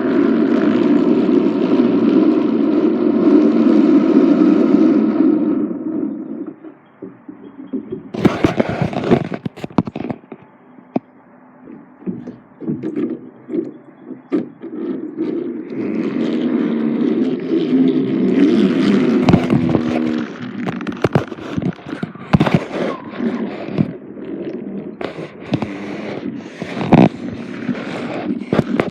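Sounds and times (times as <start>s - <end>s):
toy train humming: 11.7s - 28.9s.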